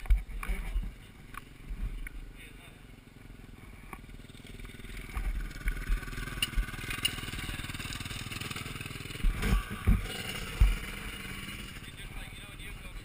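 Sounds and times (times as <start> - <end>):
motocross bike engine running: 2.7 - 12.6.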